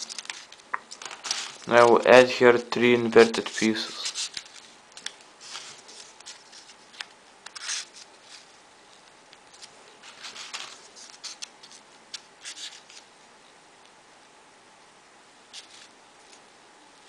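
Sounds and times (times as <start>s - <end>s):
small paper clicks: 0.0s - 2.0s, 3.2s - 13.1s
paper rustling and scraping: 0.0s - 2.1s, 2.9s - 13.1s, 15.5s - 16.4s.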